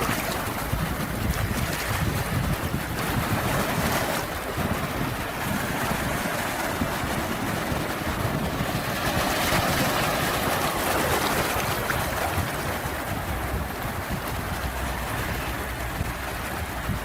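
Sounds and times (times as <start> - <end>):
sea waves washing on shore: 0.0 - 17.0.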